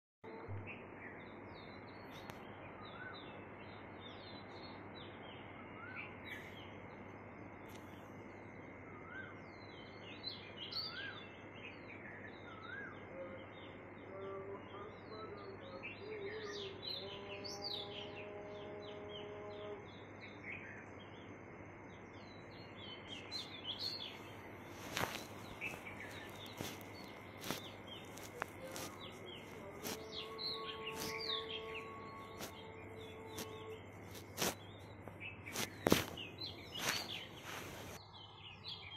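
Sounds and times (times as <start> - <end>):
small birds chirping: 0.3 - 38.9
background hiss: 19.1 - 38.9.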